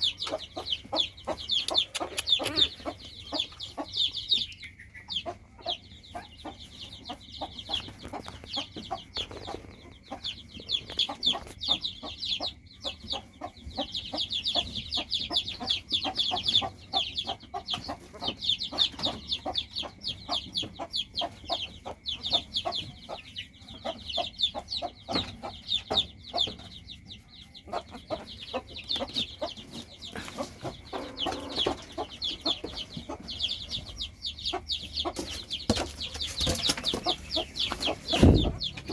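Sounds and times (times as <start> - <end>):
small animal high-pitched peeps: 0.0 - 38.9.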